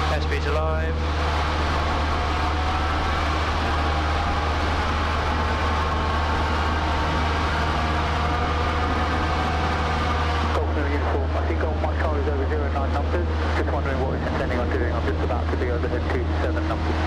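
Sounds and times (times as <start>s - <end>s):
light aircraft engine drone: 0.0s - 17.0s.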